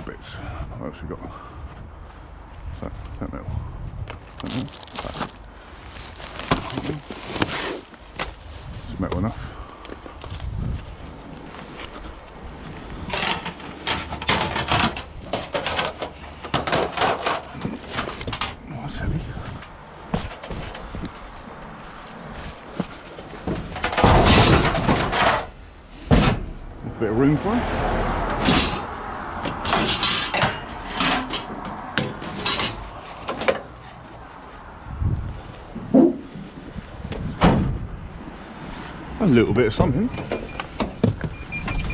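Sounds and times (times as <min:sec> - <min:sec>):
scrap items knocking and rattling: 0:06.1 - 0:08.4, 0:13.1 - 0:18.6, 0:22.5 - 0:26.6, 0:28.3 - 0:34.3.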